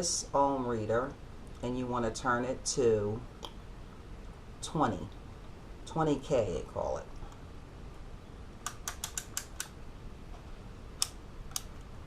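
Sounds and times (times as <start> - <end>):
dial clicking through detents: 8.6 - 9.8.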